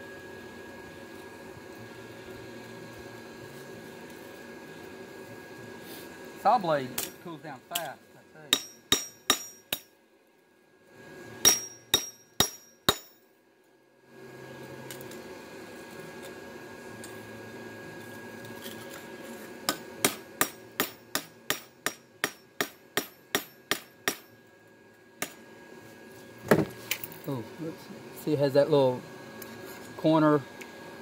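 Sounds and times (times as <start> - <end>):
forge blower hum: 0.0 - 31.0
hammer striking hot metal: 7.0 - 7.9, 8.5 - 10.0, 11.4 - 13.2, 19.7 - 24.4.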